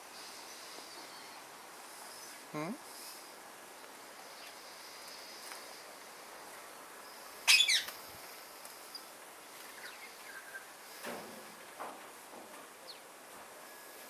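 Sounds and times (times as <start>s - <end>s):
parrot squawk: 7.5s - 7.9s.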